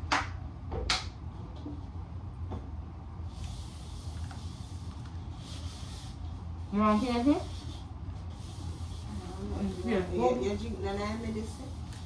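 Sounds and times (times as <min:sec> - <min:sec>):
steady low hum: 0:00.0 - 0:12.0
soft hissing noise: 0:03.2 - 0:12.0.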